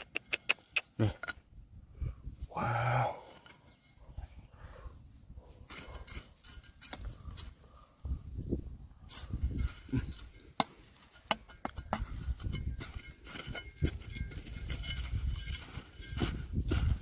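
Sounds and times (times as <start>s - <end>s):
stones and gravel clicking: 9.6s - 17.0s.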